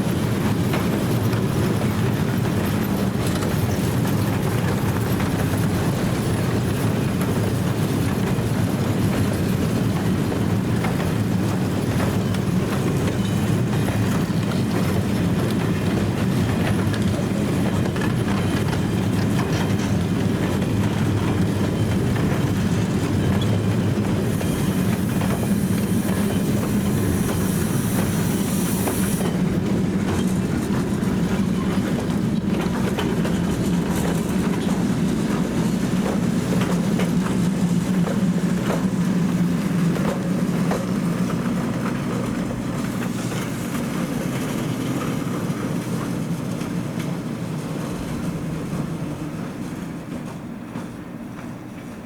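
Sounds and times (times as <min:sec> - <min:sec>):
train rumble: 0:00.0 - 0:52.0
train wheels clicking over rails: 0:00.0 - 0:52.0
high hiss: 0:24.3 - 0:29.3.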